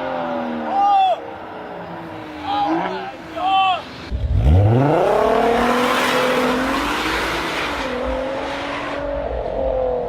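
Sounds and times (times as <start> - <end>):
car engine revving high: 4.1 - 10.0.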